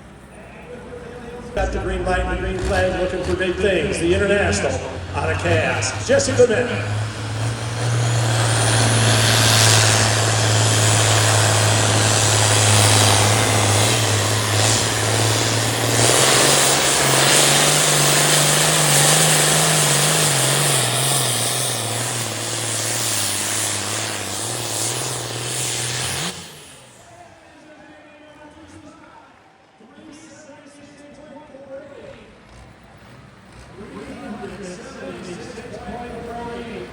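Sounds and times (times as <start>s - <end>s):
tractor engine droning: 0.0s - 36.9s.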